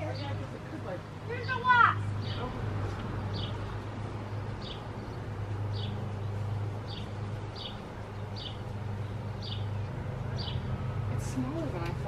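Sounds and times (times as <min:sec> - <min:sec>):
bird chirping high: 0:01.3 - 0:02.6, 0:03.3 - 0:10.7.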